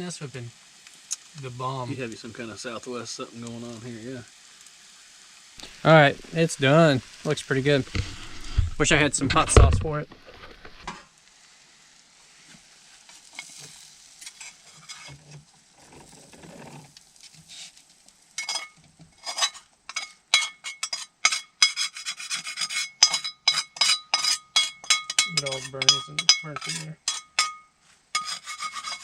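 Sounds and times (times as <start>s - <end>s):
metal utensil scraping frying pan: 7.8s - 9.7s, 13.3s - 16.9s, 18.4s - 29.0s.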